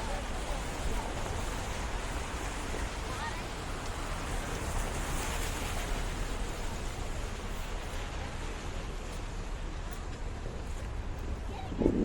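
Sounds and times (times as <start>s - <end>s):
low rumble: 11.4s - 12.0s.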